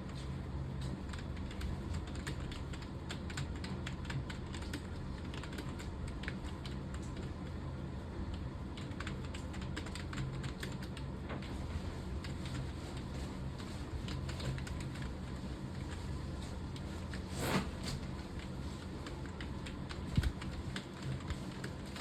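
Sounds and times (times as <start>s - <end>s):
keyboard typing: 1.1s - 7.3s, 8.8s - 11.0s.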